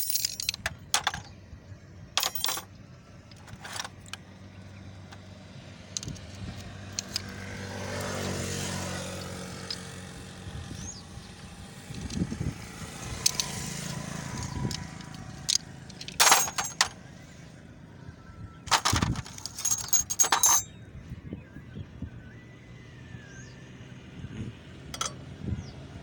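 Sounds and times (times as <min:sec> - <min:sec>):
metal tools clinking: 0:00.0 - 0:01.4, 0:02.2 - 0:04.2, 0:06.9 - 0:07.3, 0:13.2 - 0:17.0, 0:18.7 - 0:20.8, 0:24.9 - 0:25.2
low traffic hum: 0:00.0 - 0:26.0.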